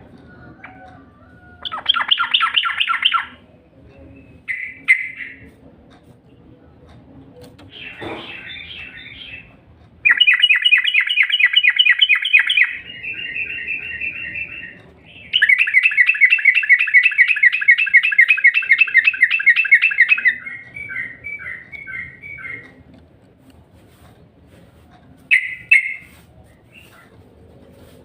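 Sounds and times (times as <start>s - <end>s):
bird trilling: 1.6s - 3.4s, 4.5s - 5.5s, 7.7s - 22.6s, 25.3s - 26.1s.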